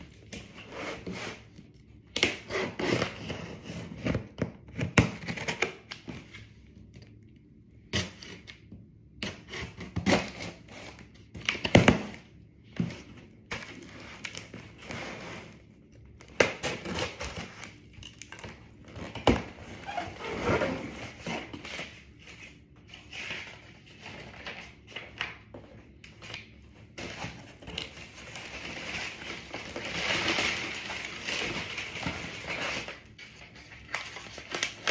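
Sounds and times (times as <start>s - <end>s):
box packing rustling and tearing: 9.3s - 25.2s, 26.1s - 34.9s.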